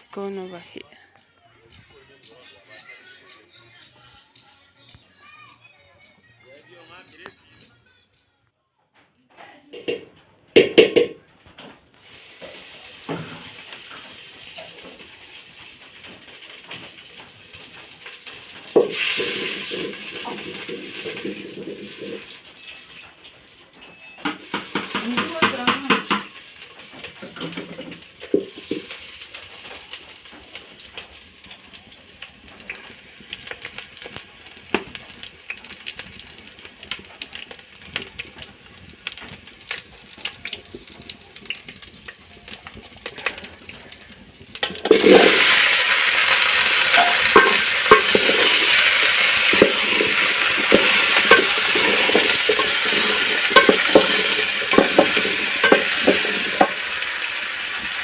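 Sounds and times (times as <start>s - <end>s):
food sizzling in hot oil: 12.0s - 58.0s
stirring scrapes and taps: 12.4s - 23.0s, 24.3s - 45.6s, 46.6s - 56.8s
kitchen utensils clicking: 15.8s - 33.9s, 44.6s - 57.9s.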